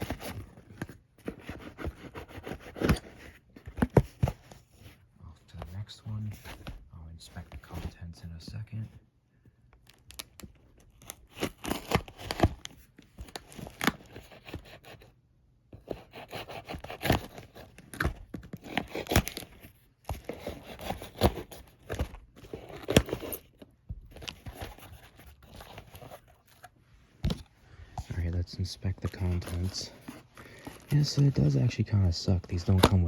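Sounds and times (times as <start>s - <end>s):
cardboard and paper tearing: 10.8s - 15.0s, 15.9s - 26.7s, 28.2s - 31.7s, 32.4s - 33.0s.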